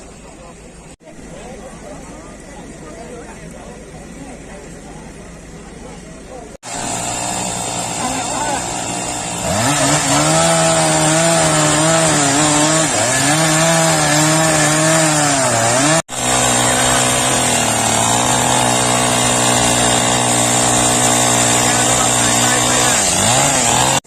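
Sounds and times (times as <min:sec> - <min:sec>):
chainsaw cutting through tree trunk: 0:06.6 - 0:24.0.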